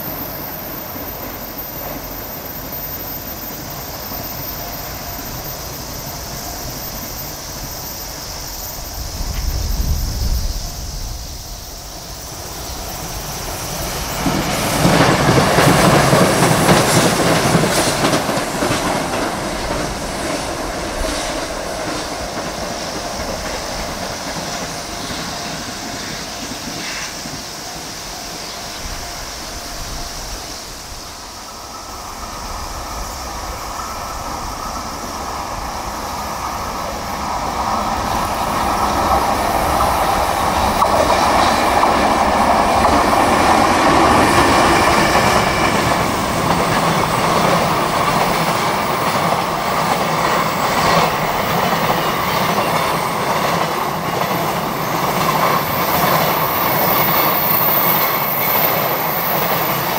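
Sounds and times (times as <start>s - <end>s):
electric train passing: 0.0s - 59.9s
freight train passing: 0.0s - 59.9s.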